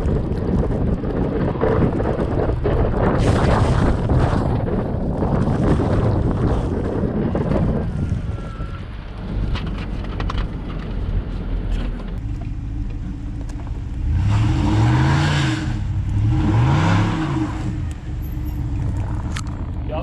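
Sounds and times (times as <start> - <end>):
snow plow engine revving: 12.2 - 19.9.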